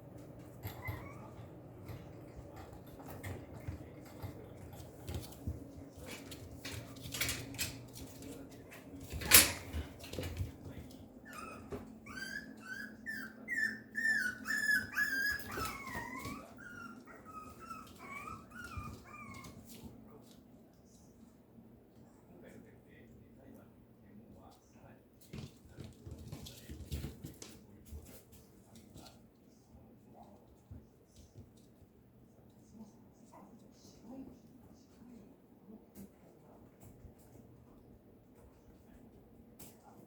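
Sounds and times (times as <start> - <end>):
puppy whimpering: 0.6 - 1.5, 11.2 - 19.7.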